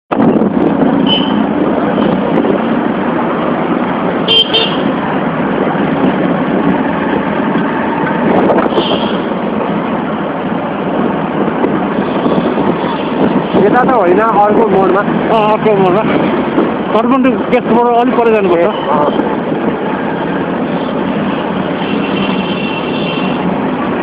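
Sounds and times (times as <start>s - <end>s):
motorbike riding in traffic: 0.1s - 24.0s
vehicle horn toots: 1.0s - 1.4s, 4.2s - 4.9s, 8.7s - 9.3s, 21.8s - 23.4s.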